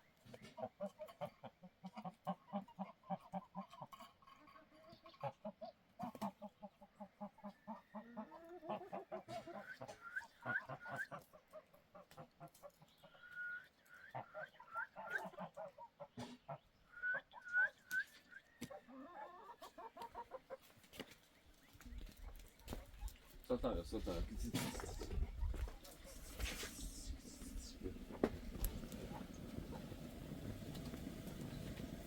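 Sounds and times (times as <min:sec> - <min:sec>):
chickens clucking: 0:00.2 - 0:32.0.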